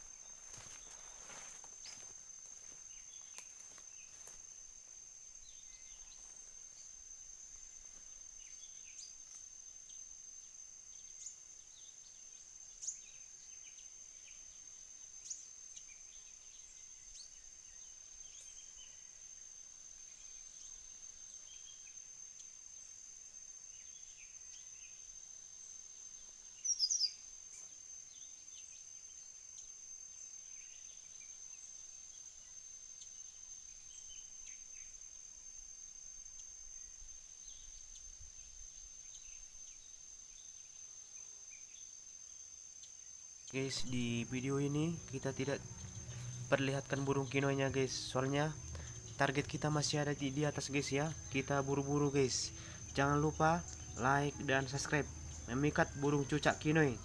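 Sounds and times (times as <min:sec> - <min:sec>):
high-pitched insect trill: 0:00.0 - 0:57.0
faint bird chirps: 0:05.4 - 0:22.6, 0:26.0 - 0:29.8.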